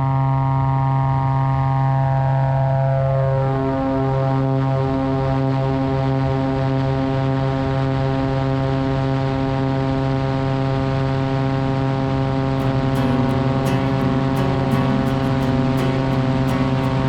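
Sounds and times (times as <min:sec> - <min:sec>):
airplane engine droning: 0:12.6 - 0:17.0.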